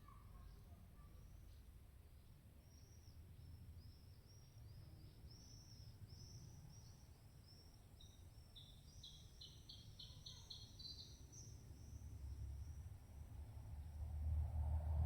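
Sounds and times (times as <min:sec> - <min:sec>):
faint birdsong chirps: 0:00.0 - 0:14.0
low wind rumble: 0:12.3 - 0:15.0.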